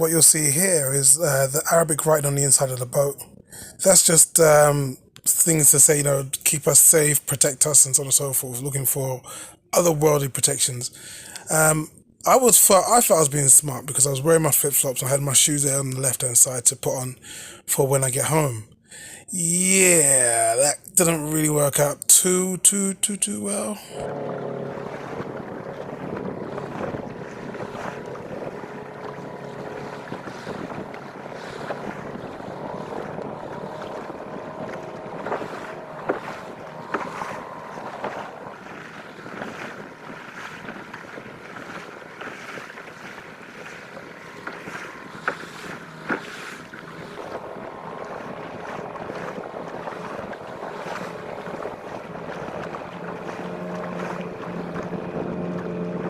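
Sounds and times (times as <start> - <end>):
outboard motor running: 0.0 - 13.6, 16.9 - 56.0
water splashing on hull: 0.0 - 56.0
wind buffeting microphone: 24.0 - 56.0.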